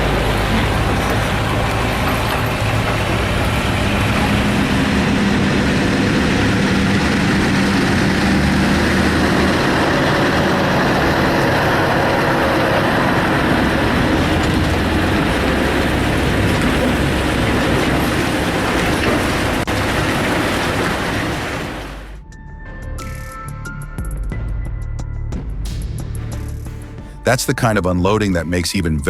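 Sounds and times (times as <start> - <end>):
large vehicle engine running: 0.0 - 22.2
road noise: 0.0 - 22.2.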